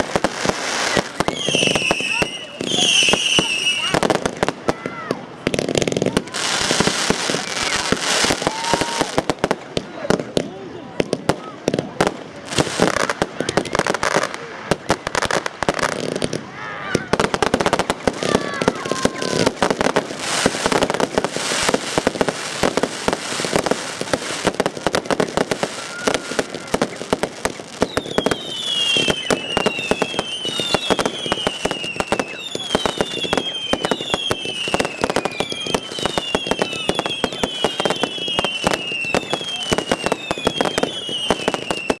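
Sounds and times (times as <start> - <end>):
fireworks crackling: 0.0 - 42.0
firework whistles falling in pitch: 0.4 - 4.1, 25.6 - 42.0.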